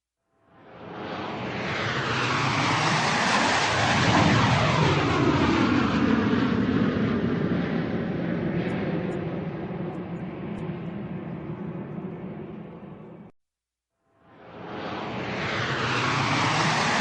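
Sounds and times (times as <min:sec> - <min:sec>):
airplane flying over: 0:00.5 - 0:13.3, 0:14.2 - 0:17.0.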